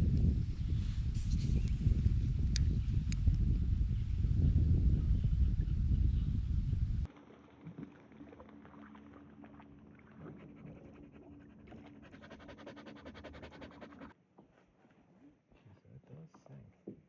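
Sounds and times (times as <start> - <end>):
dog panting: 10.2 - 14.1.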